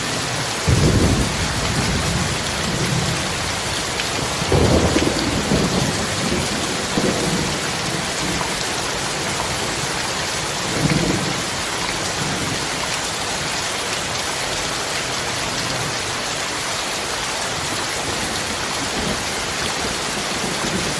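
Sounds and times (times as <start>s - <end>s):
heavy rain: 0.0s - 20.9s
thunder rumbling: 0.6s - 9.8s.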